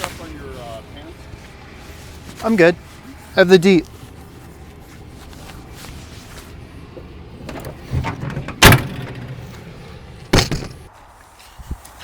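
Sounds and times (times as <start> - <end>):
scuffing and rustling: 0.0 - 8.1, 9.2 - 12.0
loud knock: 10.3 - 10.9.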